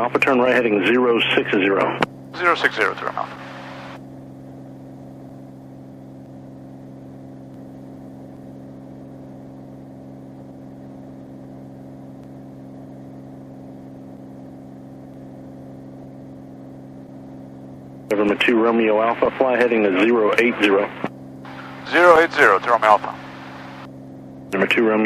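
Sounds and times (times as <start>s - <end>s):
propeller plane engine droning: 2.4s - 4.0s, 18.2s - 23.9s
faint hiss: 21.5s - 23.9s.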